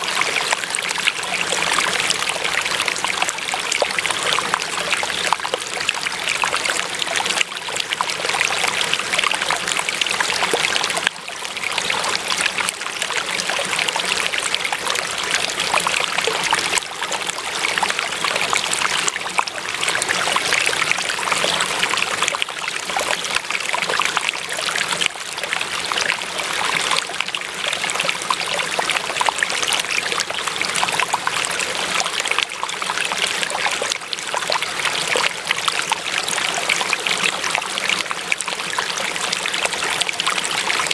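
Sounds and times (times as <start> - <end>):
stream flowing and trickling: 0.0 - 40.9.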